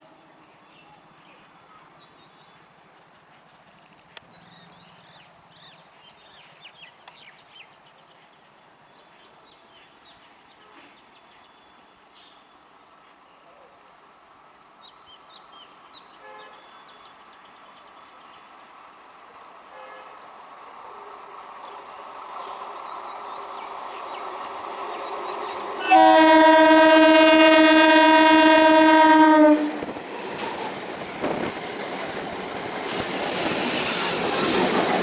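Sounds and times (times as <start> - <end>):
steady hiss of approaching train: 0.0 - 35.0
birds chirping: 19.4 - 35.0.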